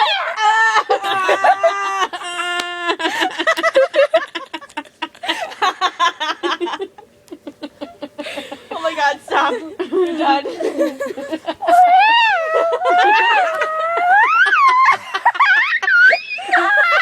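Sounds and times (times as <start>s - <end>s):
girls imitating baby crying: 0.0s - 3.1s, 9.8s - 17.0s
girls giggling and laughing: 0.0s - 17.0s.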